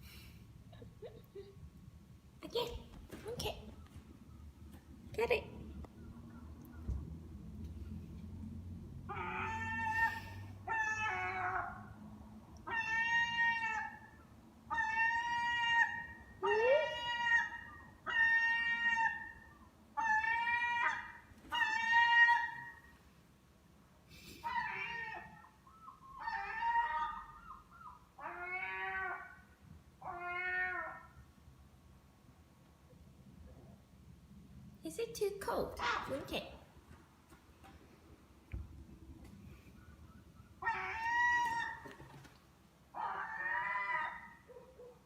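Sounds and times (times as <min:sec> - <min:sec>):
seagull mewing calls: 0:40.0 - 0:42.2.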